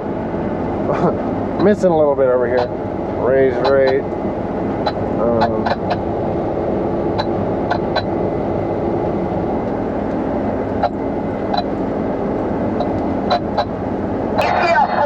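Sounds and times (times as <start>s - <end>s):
combine harvester droning: 0.0s - 15.0s.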